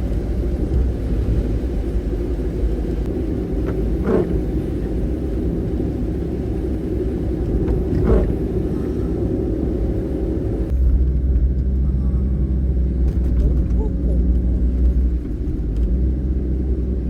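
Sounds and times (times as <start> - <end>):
van rumbling on road: 0.0 - 17.0.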